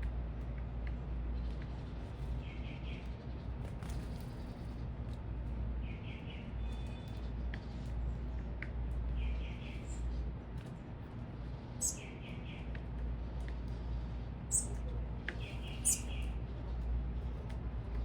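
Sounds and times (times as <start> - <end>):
steady low rumble: 0.0 - 18.0
small birds chirping: 1.3 - 3.4, 5.8 - 7.8, 9.0 - 10.3, 11.4 - 12.9, 13.6 - 16.8.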